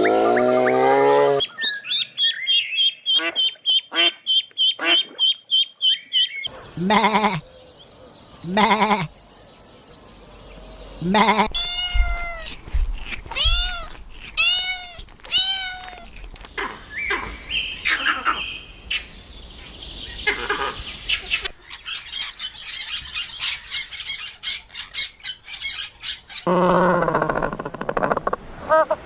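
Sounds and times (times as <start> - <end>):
chirping calls: 0.0 - 28.9
short arched animal calls: 6.8 - 7.4, 8.4 - 9.1, 11.0 - 12.6.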